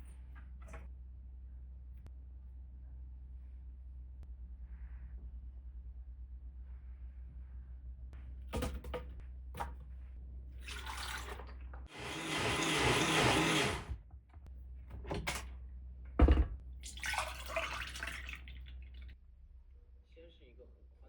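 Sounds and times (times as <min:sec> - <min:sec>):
water running from tap: 0:10.6 - 0:11.4, 0:16.8 - 0:19.1
clicks and knocks at sink: 0:16.2 - 0:16.6.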